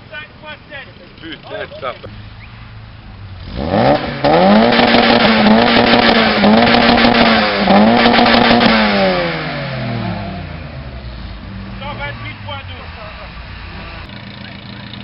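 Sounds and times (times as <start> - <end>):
engine revving hard: 3.4 - 15.0.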